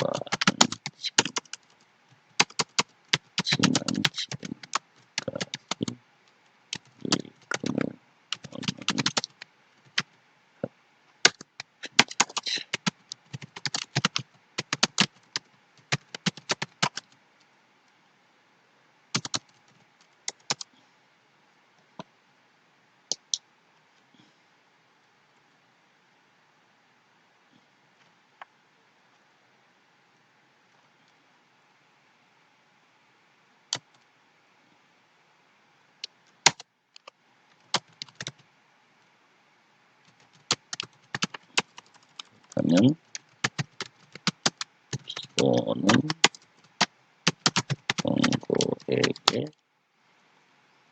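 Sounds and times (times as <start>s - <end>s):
keyboard typing: 0.0s - 6.0s, 6.7s - 10.2s, 11.2s - 17.2s, 19.1s - 20.7s, 36.4s - 38.4s, 40.1s - 49.5s.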